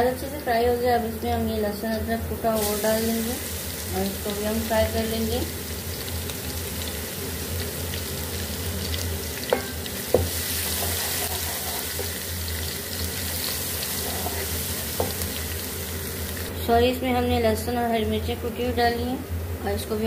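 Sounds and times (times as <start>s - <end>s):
steady low hum: 0.0s - 20.0s
food sizzling in hot oil: 1.0s - 16.6s.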